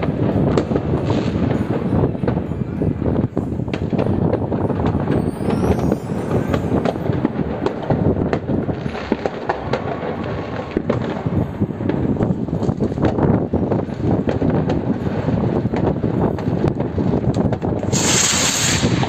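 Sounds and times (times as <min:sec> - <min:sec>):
fireworks rumble of bangs: 0:00.0 - 0:19.0
sharp fireworks cracks: 0:00.0 - 0:19.0.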